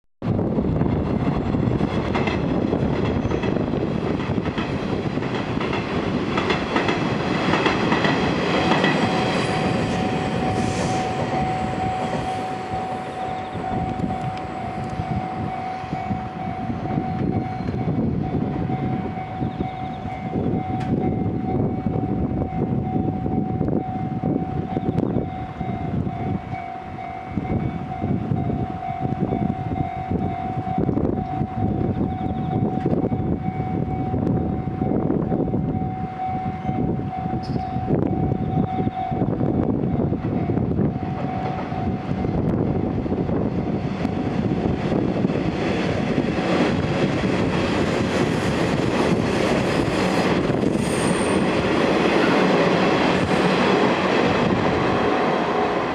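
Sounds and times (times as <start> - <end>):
electric train passing: 0.2 - 55.9
train approaching: 0.2 - 55.9
steady high tone: 8.2 - 42.9.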